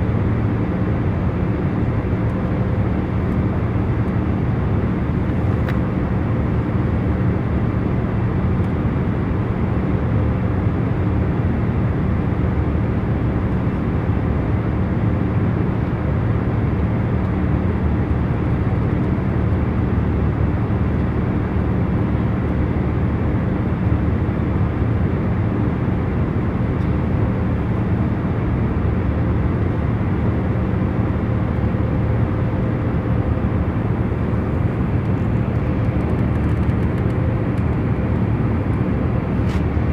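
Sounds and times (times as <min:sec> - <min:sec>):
airliner cabin hum: 0:05.0 - 0:06.6, 0:26.4 - 0:39.9.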